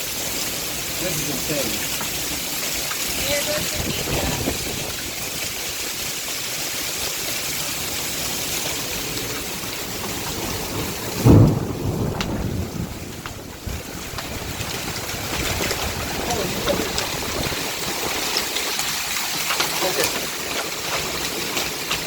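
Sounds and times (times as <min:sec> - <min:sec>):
heavy rain and hail: 0:00.0 - 0:22.0
thunder crack: 0:10.4 - 0:18.3.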